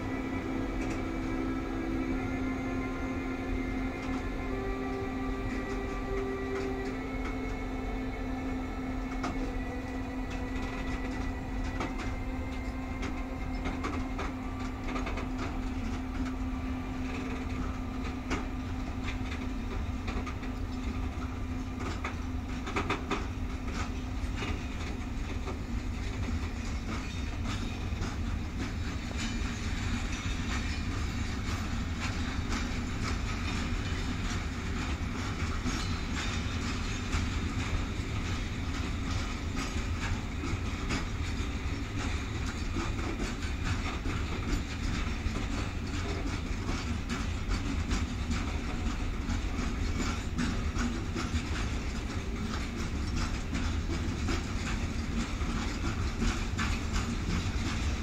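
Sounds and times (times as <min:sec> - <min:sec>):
steady hum: 0:00.0 - 0:20.2
freight wagons rumbling: 0:00.0 - 0:58.0
wheels clicking over rail joints: 0:08.7 - 0:58.0.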